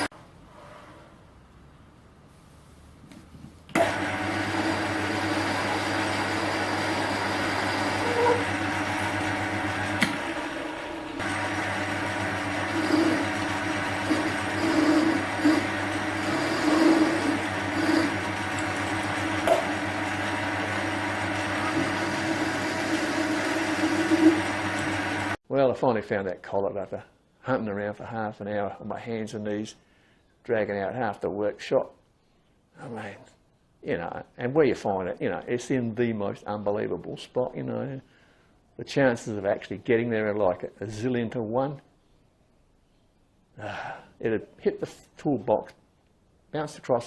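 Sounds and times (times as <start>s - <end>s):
metal lathe motor humming: 3.8s - 25.4s.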